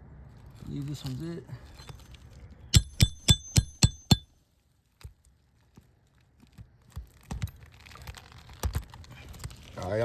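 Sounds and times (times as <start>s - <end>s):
hammer striking metal: 2.8s - 4.2s.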